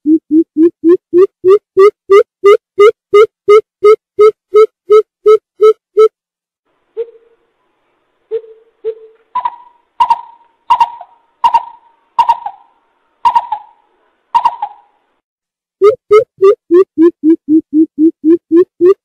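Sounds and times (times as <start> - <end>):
bird hooting: 8.3 - 12.7, 14.4 - 14.9.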